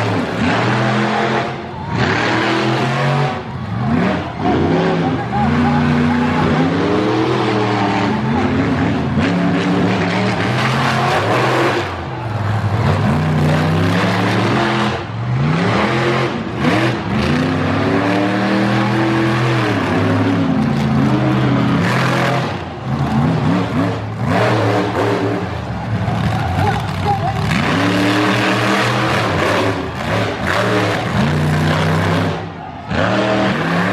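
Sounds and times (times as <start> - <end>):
monster truck engine revving: 0.0 - 33.9.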